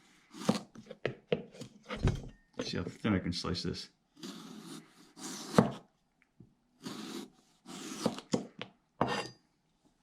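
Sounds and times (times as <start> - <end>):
knife rasping through potato: 0.2 - 1.0, 4.2 - 5.8, 6.8 - 8.4.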